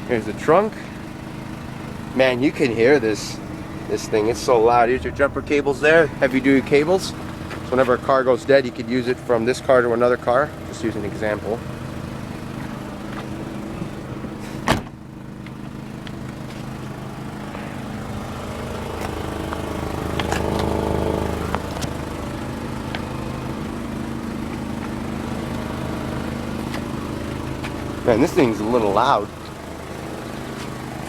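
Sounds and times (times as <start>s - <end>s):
car engine idling with raspy exhaust: 0.0s - 31.0s
sharp thump: 14.6s - 15.0s.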